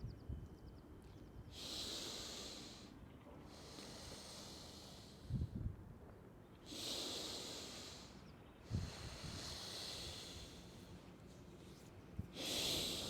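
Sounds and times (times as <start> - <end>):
person breathing forcefully: 8.7 - 10.8, 12.4 - 13.0.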